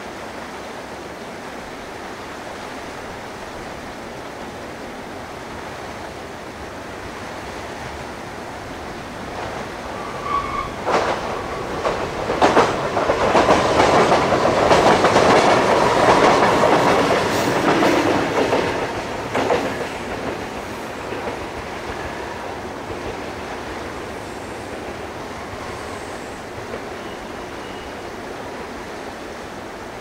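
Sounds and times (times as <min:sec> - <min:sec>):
electric train passing: 0:00.0 - 0:30.0
train wheels clacking over rail joints: 0:09.3 - 0:27.9.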